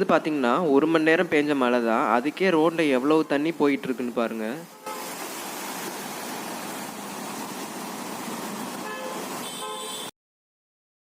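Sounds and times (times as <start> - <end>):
rainwater rushing along street: 2.0 - 10.1
vehicle horn honking: 4.7 - 5.1, 8.8 - 10.1.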